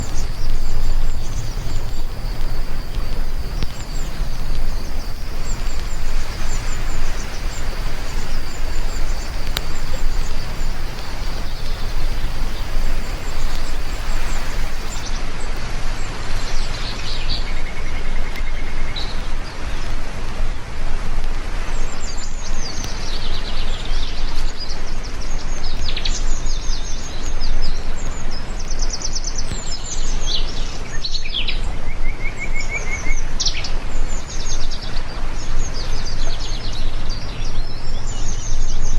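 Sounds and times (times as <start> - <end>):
birds chirping: 0.0 - 15.0
heavy rain: 0.0 - 17.2.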